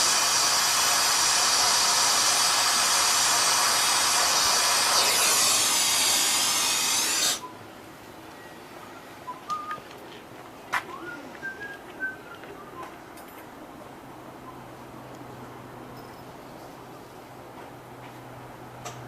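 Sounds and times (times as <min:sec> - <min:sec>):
torch flame hissing: 0:00.0 - 0:07.4.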